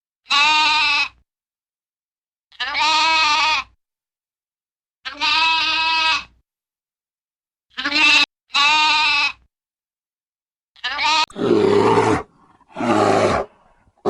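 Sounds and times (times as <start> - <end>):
bleats: 0.3 - 1.2, 2.5 - 3.7, 5.1 - 6.3, 7.7 - 9.4, 10.8 - 13.5.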